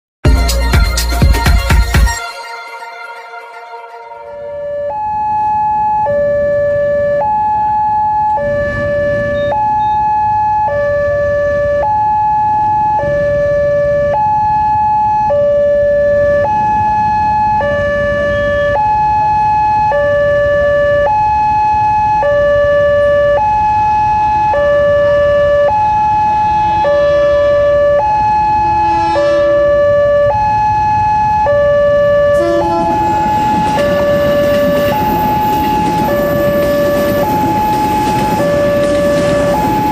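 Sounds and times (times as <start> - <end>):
level-crossing two-tone alarm: 1.2 - 39.9
electric train passing: 28.4 - 30.0, 31.8 - 39.9.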